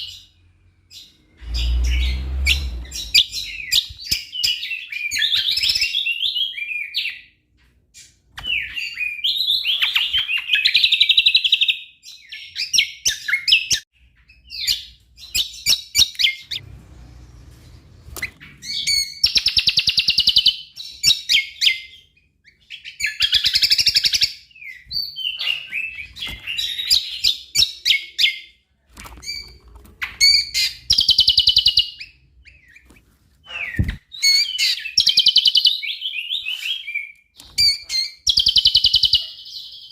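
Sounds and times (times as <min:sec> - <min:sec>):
bird chattering song: 0:00.0 - 0:07.3, 0:29.2 - 0:39.9.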